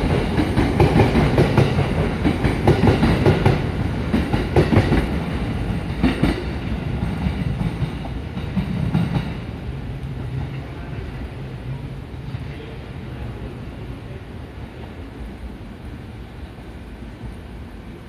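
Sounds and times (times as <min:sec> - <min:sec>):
train wheels clacking over rail joints: 0:00.0 - 0:09.4
train rumble: 0:00.0 - 0:18.0.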